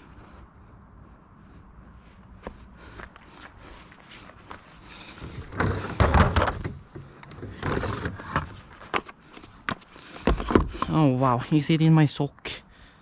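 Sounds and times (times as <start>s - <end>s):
car jack clunking and rattling: 5.2s - 8.6s.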